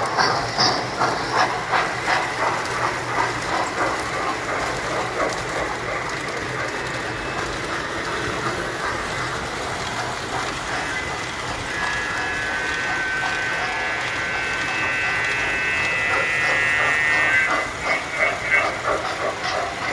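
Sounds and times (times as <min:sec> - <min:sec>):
model train wheels clicking: 0:00.0 - 0:19.9.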